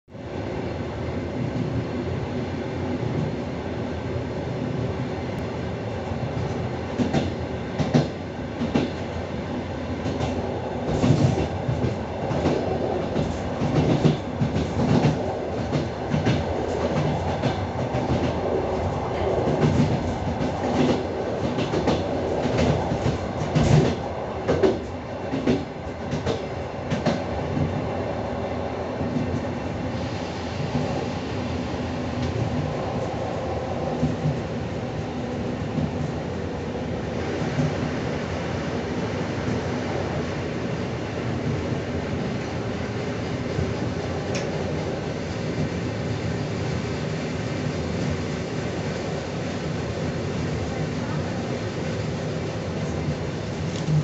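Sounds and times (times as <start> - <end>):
train wheels rumbling on rails: 0.3 - 54.0.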